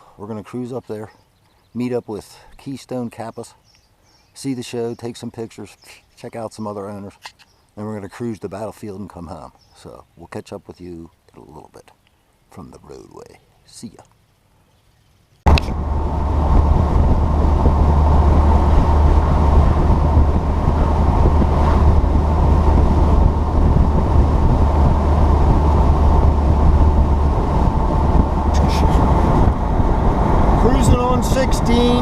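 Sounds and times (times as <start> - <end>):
wind noise: 15.4 - 32.0
car engine rumble: 15.5 - 32.0.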